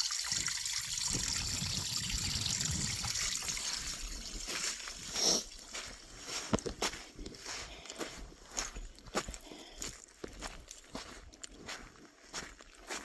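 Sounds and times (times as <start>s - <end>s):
footsteps on rock and gravel: 3.6s - 13.0s.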